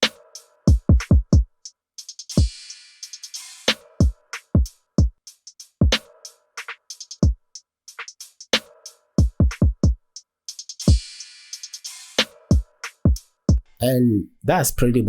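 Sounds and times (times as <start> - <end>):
hi-hat ticks: 9.5 - 12.2.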